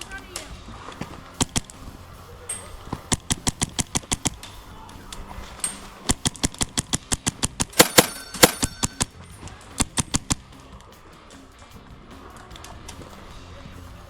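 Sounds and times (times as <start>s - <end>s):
airsoft guns firing rapidly: 2.5s - 4.5s, 5.7s - 9.1s.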